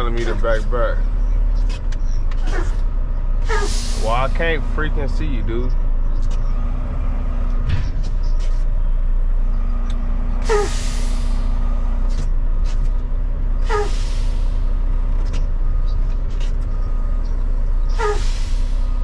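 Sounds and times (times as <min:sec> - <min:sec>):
truck engine running low: 0:00.0 - 0:19.0
air brake squeal and hiss: 0:03.5 - 0:04.2, 0:10.4 - 0:11.6, 0:13.6 - 0:14.6, 0:17.9 - 0:19.0.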